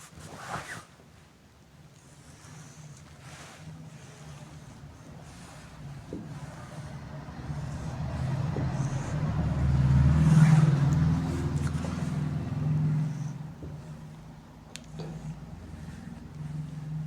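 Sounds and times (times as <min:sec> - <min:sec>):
vehicle engine passing: 0:04.4 - 0:17.0.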